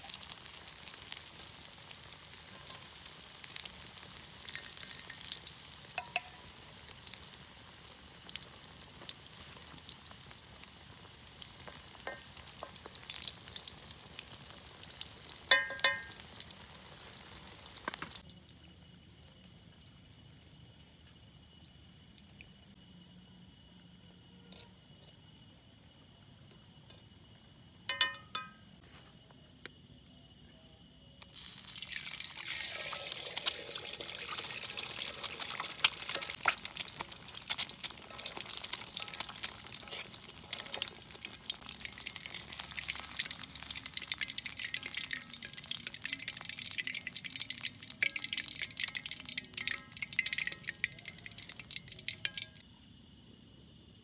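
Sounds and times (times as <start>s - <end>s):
food sizzling in a pan: 0.0s - 18.3s, 31.2s - 52.6s
insects chirring: 0.0s - 54.0s.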